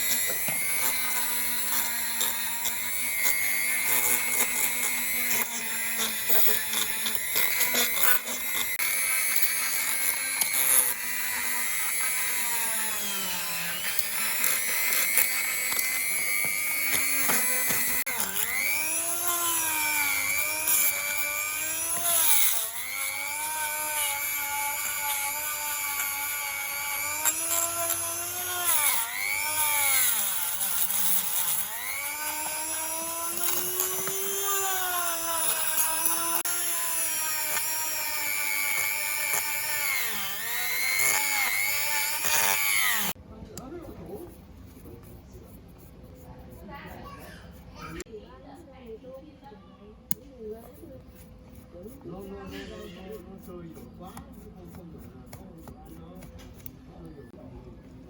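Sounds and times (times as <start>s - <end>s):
power tool motor whining: 0.0s - 43.2s
tool scraping workpiece: 0.0s - 43.2s.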